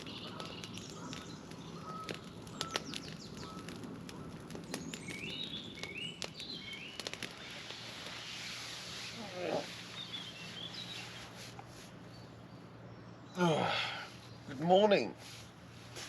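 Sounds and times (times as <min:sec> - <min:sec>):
bird stepped call: 0:00.0 - 0:09.2
birds calling: 0:00.0 - 0:15.7.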